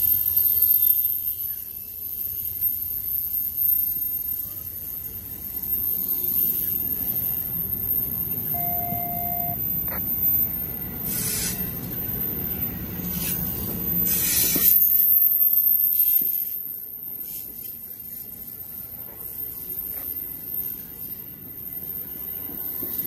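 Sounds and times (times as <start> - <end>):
train wheels rumbling on rail: 9.6 - 15.2
rushes of hiss: 11.0 - 11.9, 13.0 - 14.8.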